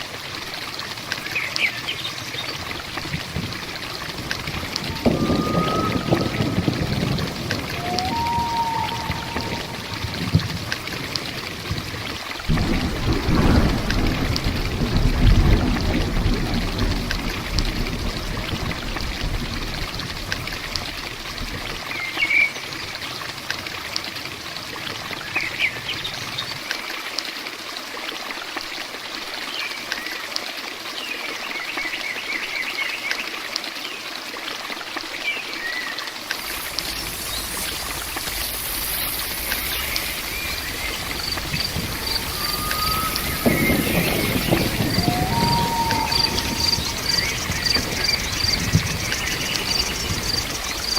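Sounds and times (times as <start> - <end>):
heavy rain: 0.0 - 27.6, 34.7 - 50.9
raindrops ticking: 0.1 - 25.0, 36.2 - 50.9
bird chirps: 36.4 - 50.9.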